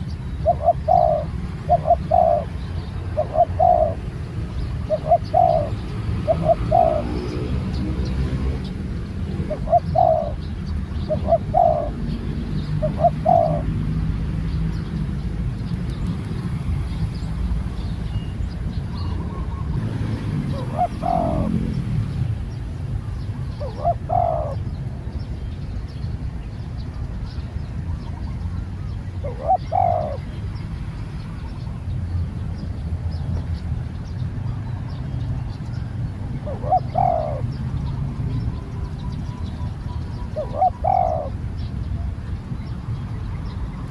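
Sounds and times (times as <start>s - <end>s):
dove cooing: 0.0s - 14.1s, 18.4s - 21.9s, 23.5s - 24.8s, 28.0s - 30.4s, 36.4s - 37.6s, 38.7s - 41.6s.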